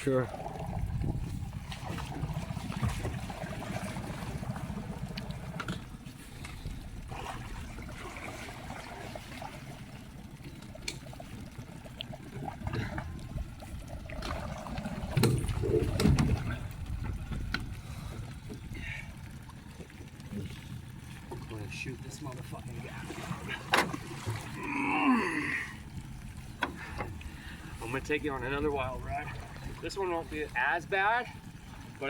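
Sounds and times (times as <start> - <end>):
water splashing along boat: 0.0 - 32.0
low rumble: 0.2 - 8.1, 12.2 - 21.2.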